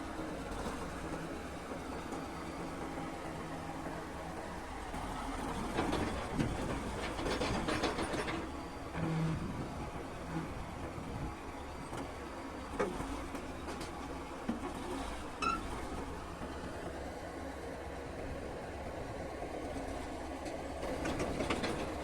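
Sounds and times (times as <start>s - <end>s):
bulldozer engine rumble: 0.0s - 22.0s
steel tracks clanking: 4.1s - 11.6s, 19.8s - 22.0s
short high squeal: 15.4s - 15.7s.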